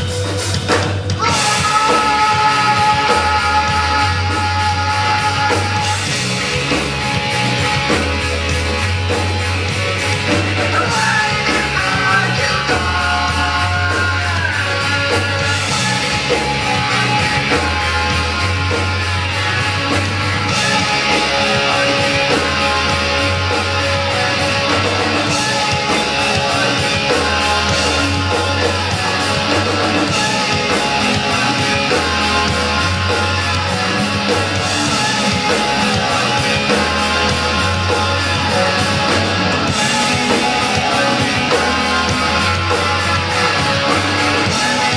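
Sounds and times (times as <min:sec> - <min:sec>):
live rock band playing: 0:00.0 - 0:44.9.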